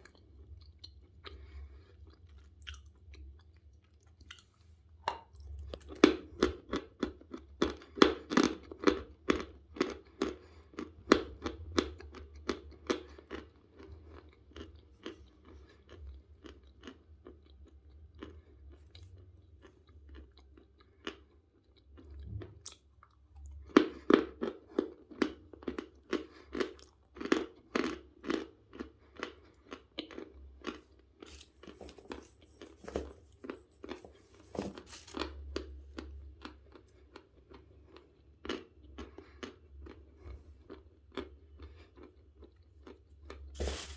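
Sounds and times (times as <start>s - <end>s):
chewing chalk crunches: 25.6s - 43.9s.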